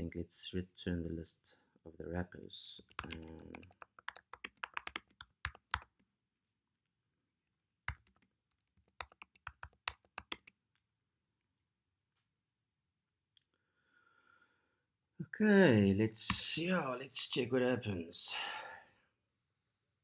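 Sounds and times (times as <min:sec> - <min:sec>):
computer keyboard typing: 0:02.8 - 0:05.9, 0:07.9 - 0:10.6.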